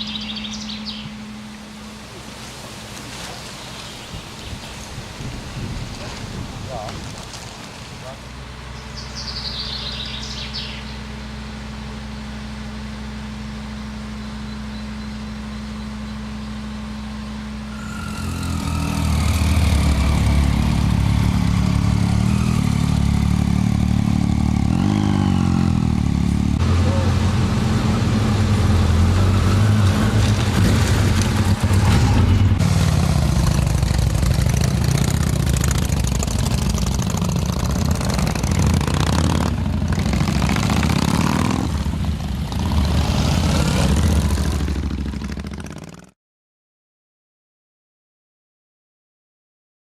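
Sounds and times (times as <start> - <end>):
motorcycle engine revving: 15.2 - 46.2
motorcycle engine idling: 31.4 - 40.9, 43.9 - 46.1.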